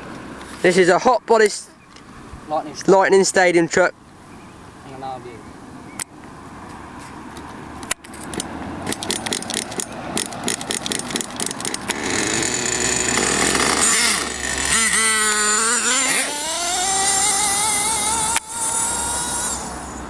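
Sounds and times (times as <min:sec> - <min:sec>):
small nitro engine running: 0:08.9 - 0:20.0.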